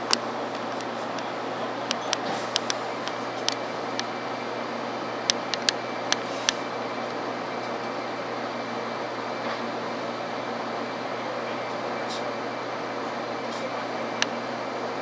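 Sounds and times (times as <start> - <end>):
train cabin hiss and rumble: 0.0 - 15.0
sharp clicks: 0.1 - 4.1, 5.3 - 6.6.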